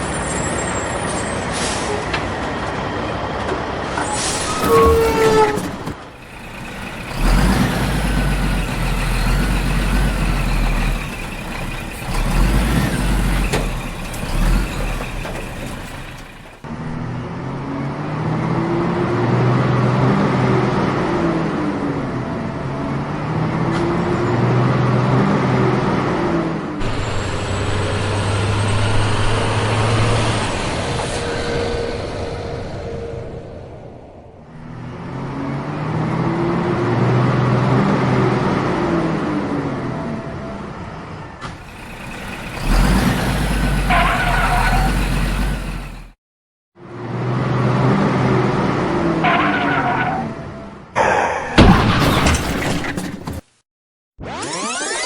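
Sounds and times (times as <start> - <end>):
vehicle engine rumbling: 0.0 - 19.4, 41.4 - 46.2
low rising and falling tone: 54.2 - 55.0.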